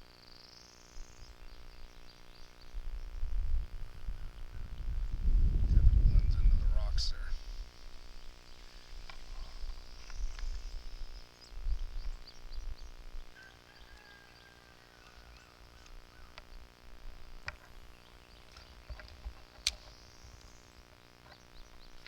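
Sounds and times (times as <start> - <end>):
faint high hiss: 0.0 - 22.0
wind rumble on microphone: 1.0 - 13.4
sharp clicks: 18.4 - 22.0.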